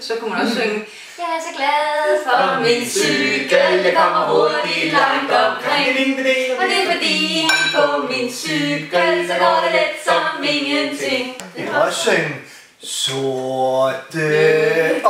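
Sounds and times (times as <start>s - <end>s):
choir singing unaccompanied: 1.5s - 12.3s, 14.1s - 15.0s.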